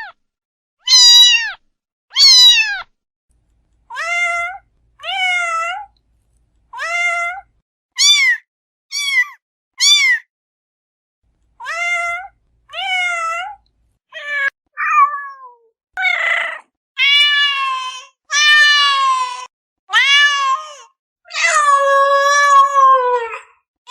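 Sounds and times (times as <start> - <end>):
kitten meowing: 0.8 - 2.8, 8.0 - 10.3, 14.2 - 19.0, 19.9 - 20.5.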